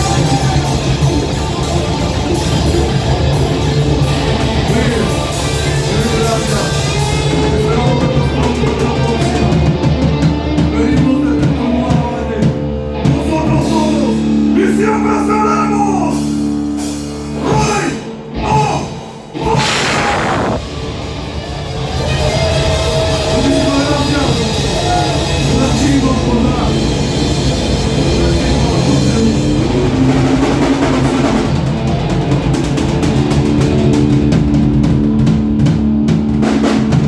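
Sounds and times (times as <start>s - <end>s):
drums and cymbals: 0.0s - 14.7s, 18.6s - 37.0s
heavy metal band playing: 0.0s - 37.0s.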